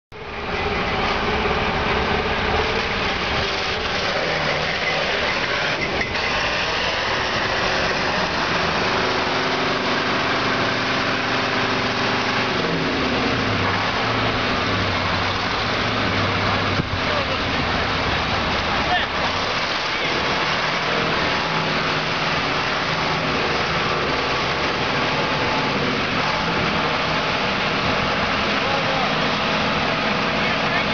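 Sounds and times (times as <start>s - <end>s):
truck diesel engine running: 0.1s - 30.9s.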